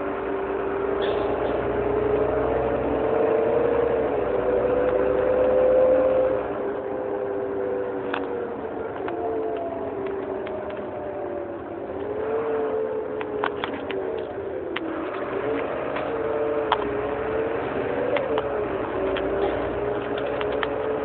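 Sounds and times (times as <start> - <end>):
bus engine droning: 0.0 - 21.0
sharp clicks and rattles: 13.1 - 21.0.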